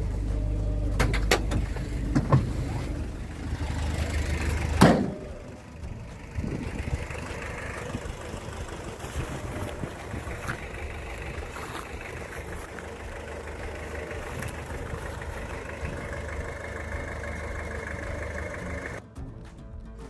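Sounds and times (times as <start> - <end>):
engine idling: 0.0 - 19.0
sharp clicks and knocks: 0.9 - 3.0.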